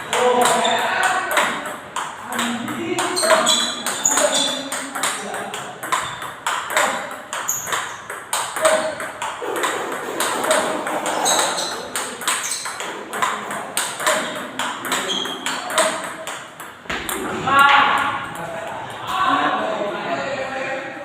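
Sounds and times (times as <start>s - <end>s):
ball clicking off paddles: 0.0s - 17.2s
ball bouncing on table: 0.1s - 17.3s.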